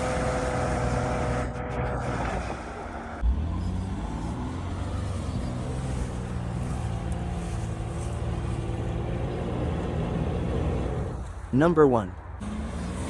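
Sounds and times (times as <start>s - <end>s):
vehicle engine running at low revs: 0.0s - 11.6s.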